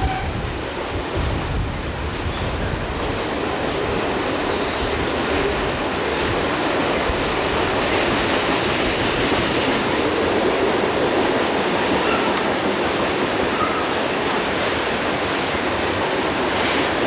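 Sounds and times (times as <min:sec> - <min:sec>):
freight train rumbling on rails: 0:00.0 - 0:17.0.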